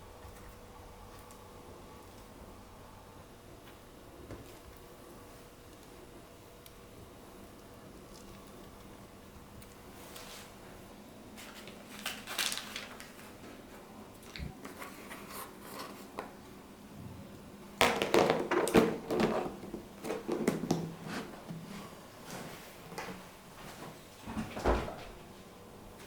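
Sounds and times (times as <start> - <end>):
kitchen items clattering: 17.8 - 21.7.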